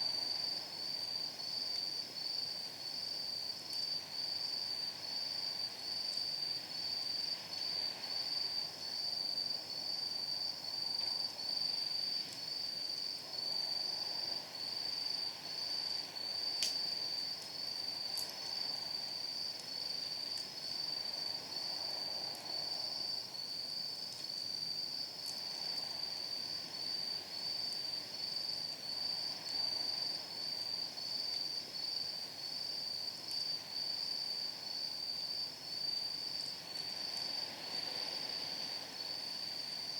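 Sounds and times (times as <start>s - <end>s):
night insects chirping: 0.0s - 39.9s
wood fire crackling and popping: 16.6s - 18.3s.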